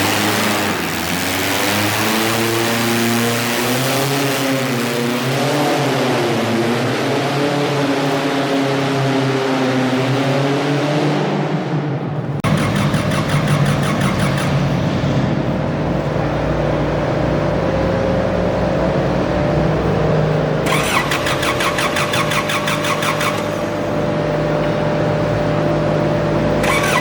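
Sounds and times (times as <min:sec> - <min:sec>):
garden tractor engine running: 0:12.4 - 0:14.8, 0:20.5 - 0:27.0
rapid high rattling: 0:12.4 - 0:14.8, 0:20.6 - 0:24.1.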